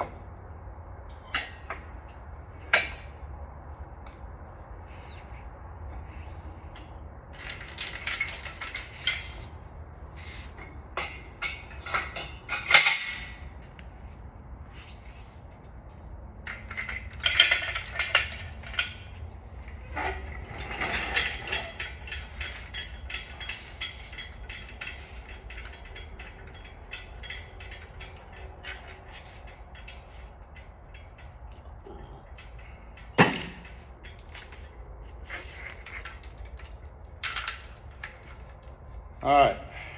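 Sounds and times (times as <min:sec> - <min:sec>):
metal tools clinking and clanking: 0:06.7 - 0:09.6, 0:16.4 - 0:38.6.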